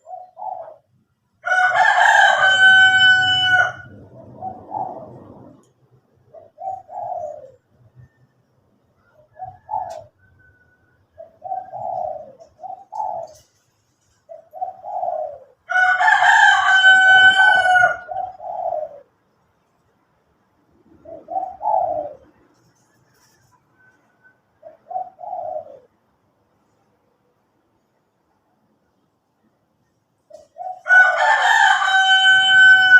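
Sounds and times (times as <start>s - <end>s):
doves cooing: 0.0s - 0.9s, 1.6s - 8.2s, 9.0s - 19.2s, 20.7s - 26.0s, 30.3s - 32.9s
rooster crowing: 1.4s - 5.3s, 15.7s - 18.3s, 30.8s - 32.9s.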